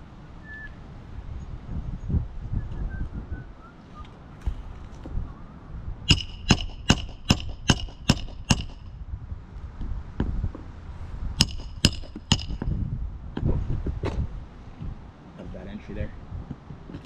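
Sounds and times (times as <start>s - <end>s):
hammer striking metal: 6.1s - 9.0s, 11.4s - 12.7s.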